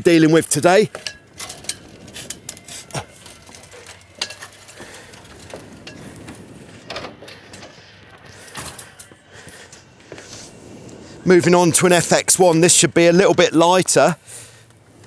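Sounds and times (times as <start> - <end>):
metallic rigging clinks: 0.4 - 6.3.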